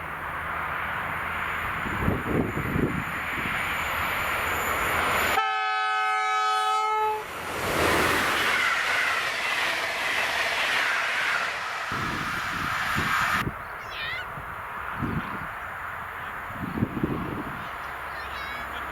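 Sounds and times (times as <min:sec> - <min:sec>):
train rolling past: 0:00.0 - 0:18.9
train horn blast: 0:05.3 - 0:07.3.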